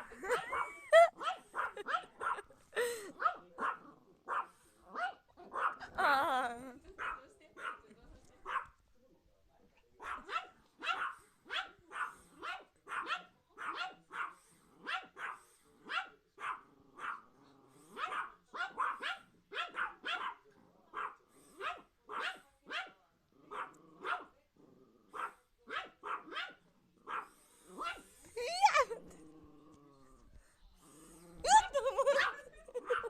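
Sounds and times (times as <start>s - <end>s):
dog barking: 0.3s - 2.5s, 3.2s - 5.9s, 7.0s - 8.8s, 10.0s - 17.3s, 18.0s - 24.3s, 25.2s - 28.1s, 31.8s - 33.0s.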